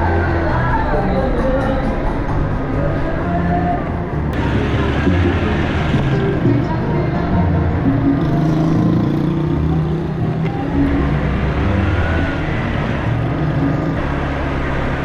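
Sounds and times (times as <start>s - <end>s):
road and wind noise: 0.0s - 15.0s
small motorcycle engine: 4.4s - 15.0s.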